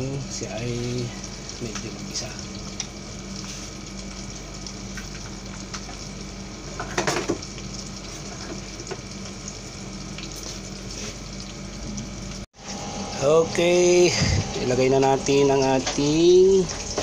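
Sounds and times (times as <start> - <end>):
food sizzling in hot oil: 0.0 - 17.0
low hum: 9.2 - 17.0.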